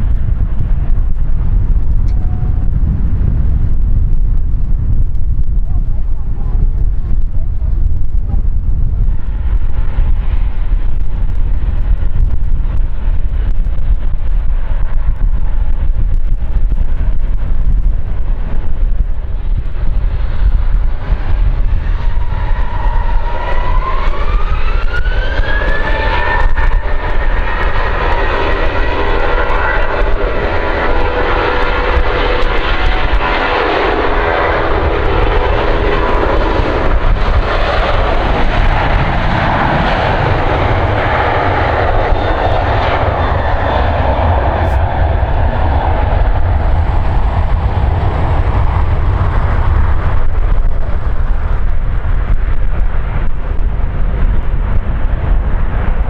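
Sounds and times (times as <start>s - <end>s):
jet engines spooling up: 21.1s - 53.6s.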